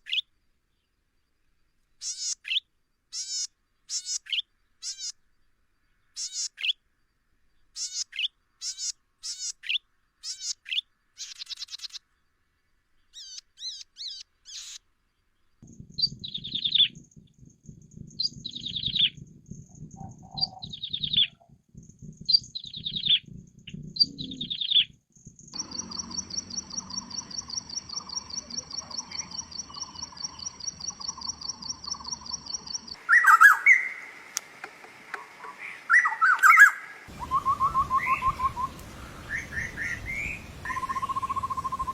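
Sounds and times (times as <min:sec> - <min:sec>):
songbirds singing: 0:00.0 - 0:41.9
bird trill: 0:02.0 - 0:05.2, 0:06.2 - 0:06.8, 0:13.1 - 0:14.8, 0:16.0 - 0:17.2, 0:18.1 - 0:21.5, 0:22.2 - 0:34.3, 0:35.2 - 0:41.9
louder different bird: 0:15.6 - 0:17.4, 0:18.1 - 0:21.6, 0:22.2 - 0:25.0, 0:25.6 - 0:41.9.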